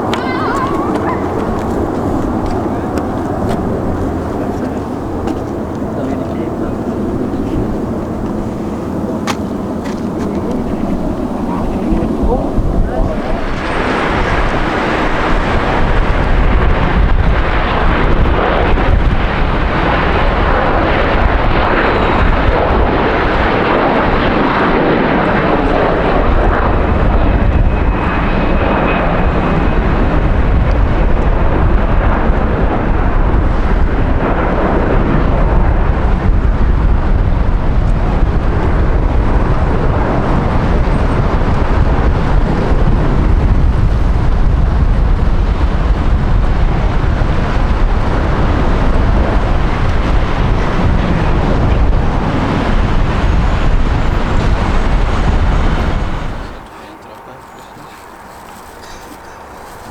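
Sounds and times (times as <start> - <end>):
jet airliner engines roaring: 0.0 - 59.9.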